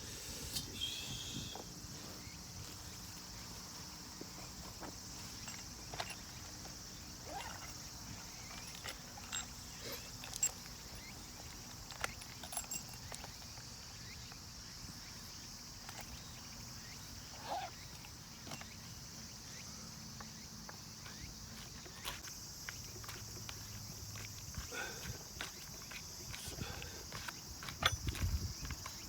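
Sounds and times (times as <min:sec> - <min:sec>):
high-pitched insect chorus: 0:00.0 - 0:29.0.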